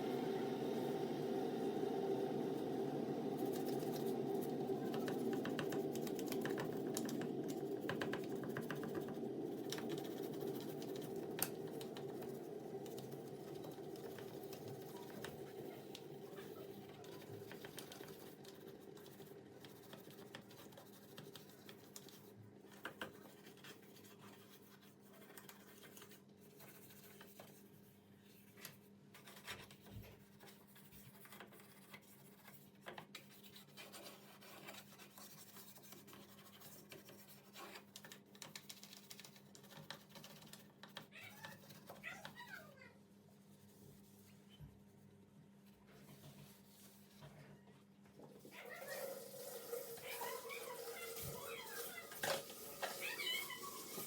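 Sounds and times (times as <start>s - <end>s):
steady hum: 0.0s - 19.8s.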